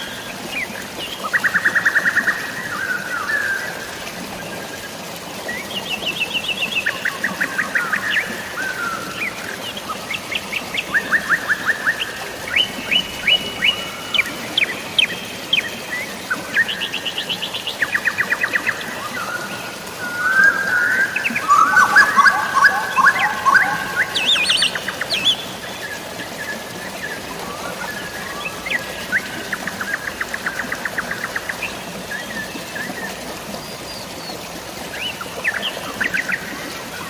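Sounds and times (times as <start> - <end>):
faint rain and flowing water: 0.0 - 37.0
songbirds trilling: 0.0 - 37.0.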